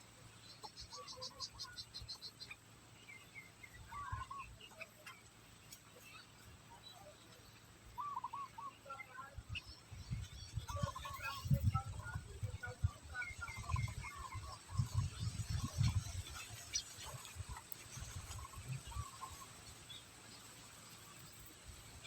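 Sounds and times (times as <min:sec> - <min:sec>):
small bird chirps: 0:00.4 - 0:12.2.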